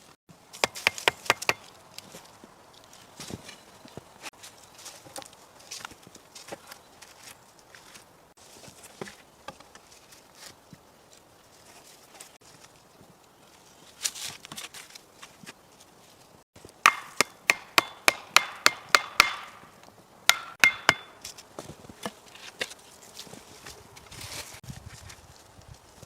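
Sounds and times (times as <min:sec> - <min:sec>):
axe strikes chopping wood: 0:00.6 - 0:01.7, 0:16.8 - 0:21.2.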